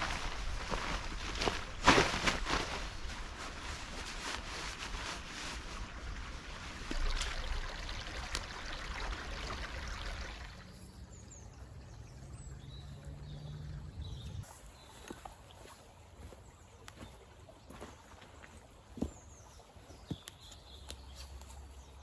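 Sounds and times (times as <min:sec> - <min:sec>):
stream rushing water: 0:05.2 - 0:19.9.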